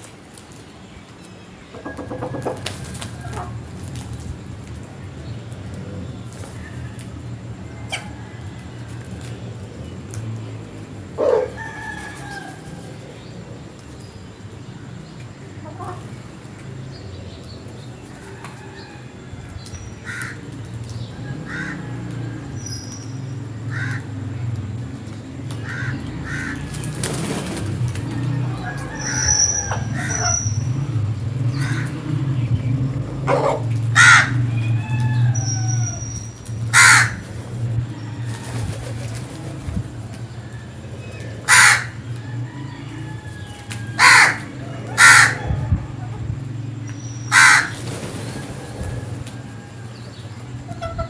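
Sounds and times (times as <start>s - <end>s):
crows cawing: 20.0s - 20.4s, 21.4s - 21.9s, 23.7s - 24.1s, 25.6s - 26.7s, 31.6s - 31.9s, 34.0s - 34.4s, 36.7s - 37.2s, 41.4s - 42.0s, 43.9s - 45.4s, 47.3s - 47.8s
small birds chirping: 28.9s - 33.5s.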